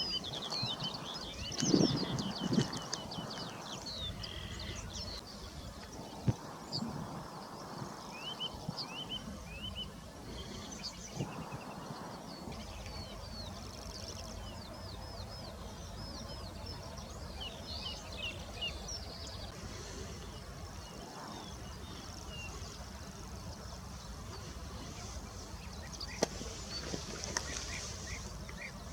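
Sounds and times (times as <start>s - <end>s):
birds chirping: 0.0s - 28.9s.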